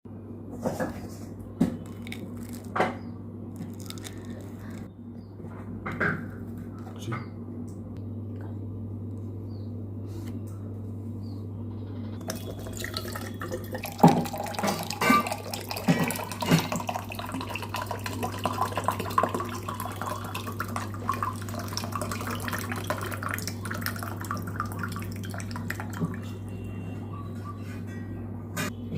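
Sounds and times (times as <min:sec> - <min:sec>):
steady low hum: 0:00.1 - 0:28.9
coconut water pouring and splashing: 0:01.9 - 0:02.8, 0:03.6 - 0:04.9, 0:12.3 - 0:26.2.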